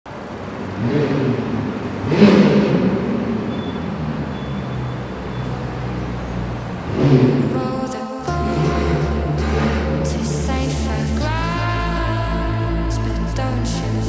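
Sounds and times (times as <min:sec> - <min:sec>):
car engine running: 0:00.1 - 0:03.4.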